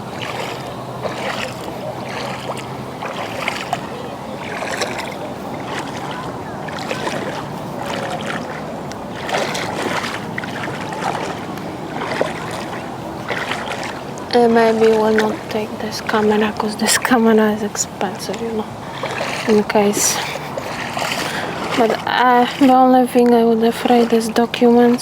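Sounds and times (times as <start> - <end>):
water splashing around wading legs: 0.0 - 25.0.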